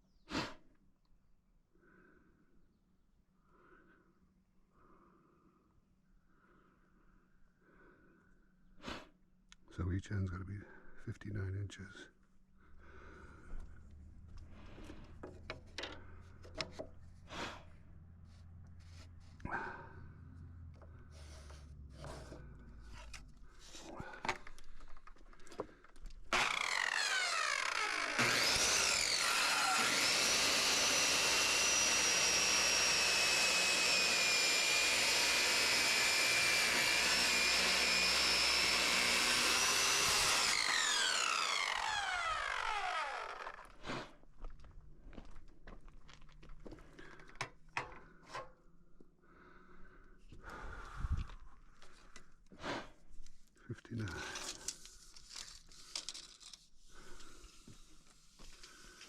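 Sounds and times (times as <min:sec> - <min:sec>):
electric power saw running: 0:25.8 - 0:43.8.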